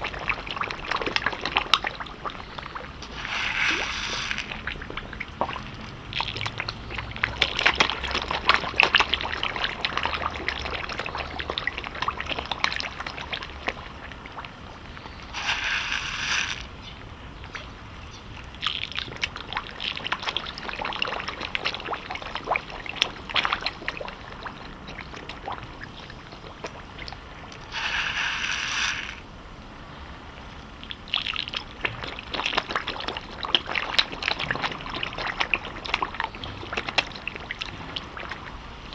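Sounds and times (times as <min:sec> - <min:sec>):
fish sucking and smacking at surface: 0:03.0 - 0:13.2, 0:15.3 - 0:16.7
splashing rush: 0:03.1 - 0:11.4.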